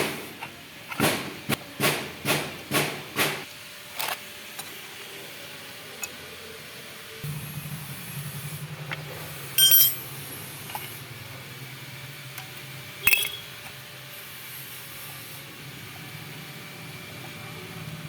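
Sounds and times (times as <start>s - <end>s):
sharp metal clinks: 9.6s - 10.1s
low steady hum: 9.6s - 10.2s.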